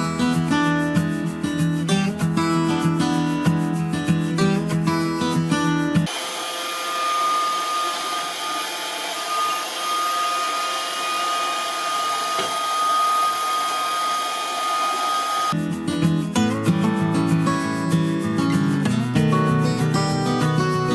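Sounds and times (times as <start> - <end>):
robot vacuum running: 6.1 - 15.6.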